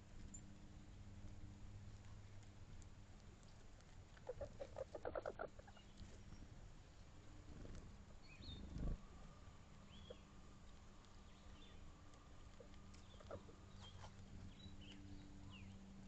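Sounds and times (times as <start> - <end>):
animal clucking calls: 4.2 - 5.9, 12.6 - 14.1
faint high bird chirp: 8.2 - 8.9, 13.0 - 15.8.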